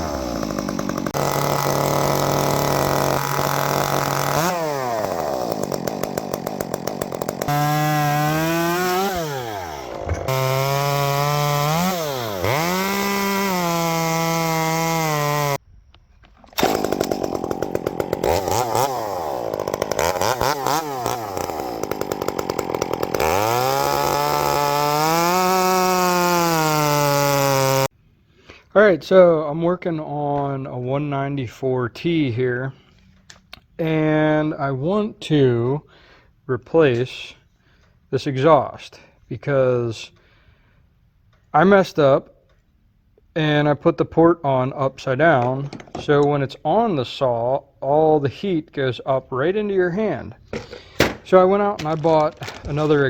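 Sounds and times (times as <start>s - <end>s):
chainsaw engines revving: 0.0s - 15.6s, 16.6s - 27.9s, 50.6s - 53.0s.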